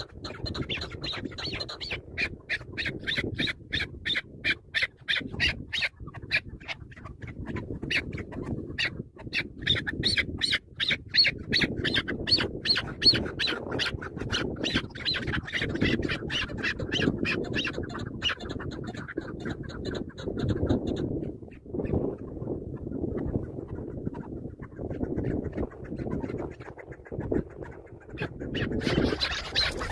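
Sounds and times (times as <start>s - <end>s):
partridge clucking calls: 0.0s - 29.9s.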